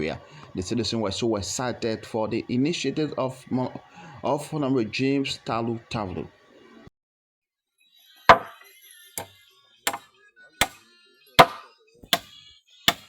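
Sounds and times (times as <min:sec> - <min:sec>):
hand tool striking blows: 0:08.3 - 0:08.6, 0:11.4 - 0:12.3.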